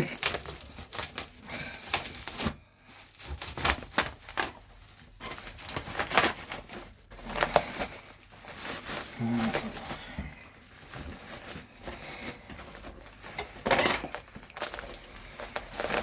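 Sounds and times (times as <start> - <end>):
packaging crinkling: 0.0 - 16.0.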